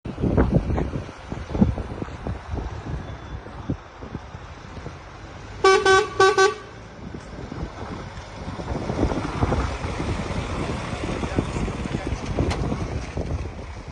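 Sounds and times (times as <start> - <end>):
wind buffeting microphone: 0.1 - 13.9
vehicle horn toots: 5.6 - 6.8.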